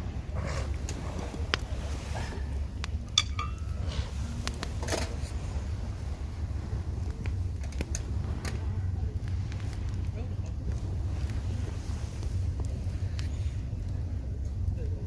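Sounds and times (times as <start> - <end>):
steady low rumble: 0.0 - 15.0
light metallic clinks: 3.1 - 3.9.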